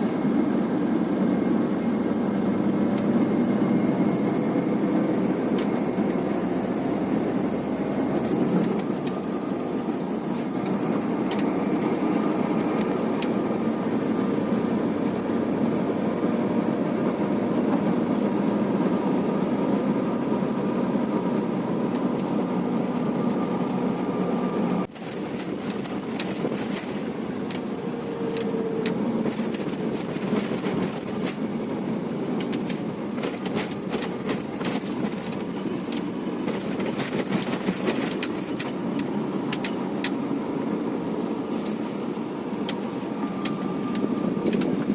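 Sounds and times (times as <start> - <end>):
road noise: 0.0 - 44.9
truck engine running: 0.0 - 44.9
clicks and rattles: 24.9 - 27.7, 28.3 - 31.6, 32.4 - 40.2.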